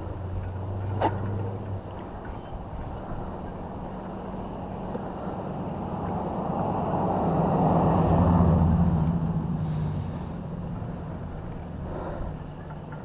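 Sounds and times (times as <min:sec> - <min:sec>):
vehicle driving past: 0:02.9 - 0:13.0.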